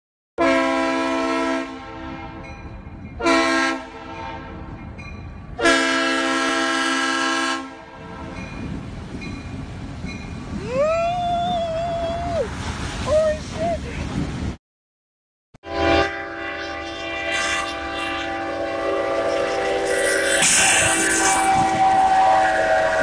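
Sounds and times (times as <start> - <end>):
locomotive air horn blasts: 0.4 - 2.5, 3.2 - 4.7, 5.6 - 8.4, 15.6 - 23.0
train rumbling: 0.4 - 14.6, 15.7 - 23.0.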